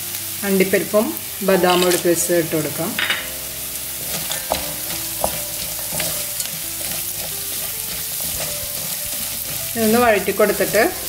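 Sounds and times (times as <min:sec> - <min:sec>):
food sizzling in oil: 0:00.0 - 0:11.0
wooden spatula scraping pan: 0:03.7 - 0:11.0.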